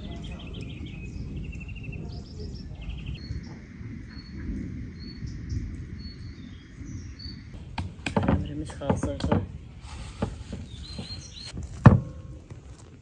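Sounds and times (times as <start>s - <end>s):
low rumble: 0.0s - 8.8s
songbirds chirping: 0.0s - 13.0s.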